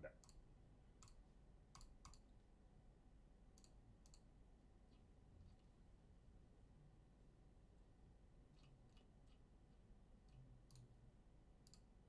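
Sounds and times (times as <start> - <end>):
faint sharp clicks: 1.0 - 2.2, 11.6 - 11.9.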